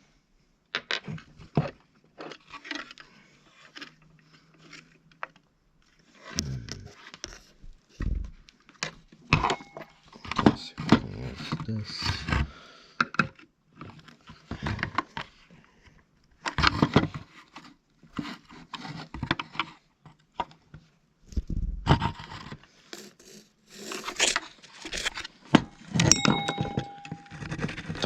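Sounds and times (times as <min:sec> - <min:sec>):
tool scraping and prying at a cover: 0:21.9 - 0:28.0.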